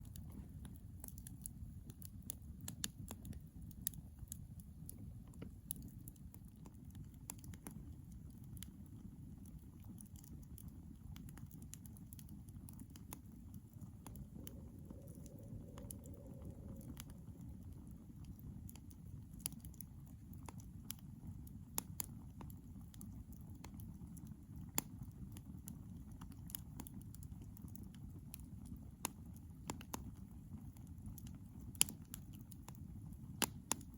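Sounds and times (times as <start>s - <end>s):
campfire crackling and popping: 0.0s - 33.9s
steady low rumble: 11.6s - 20.6s
faint held tone: 14.1s - 17.7s.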